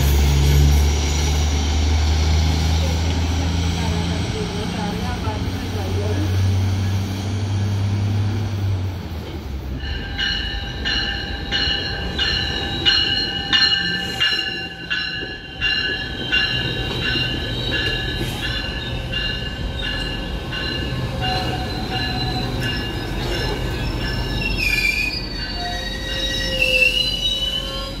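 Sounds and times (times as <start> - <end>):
train cars rumbling past: 0.0 - 28.0
high ringing squeal: 9.8 - 28.0.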